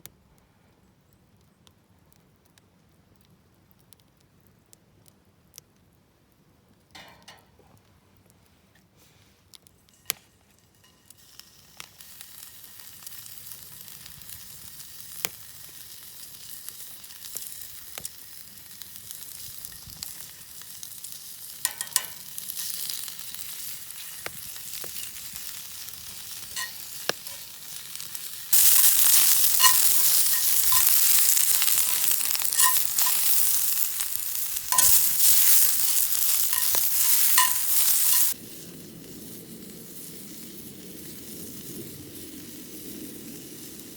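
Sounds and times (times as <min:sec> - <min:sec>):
food sizzling on a grill: 0:09.9 - 0:43.9.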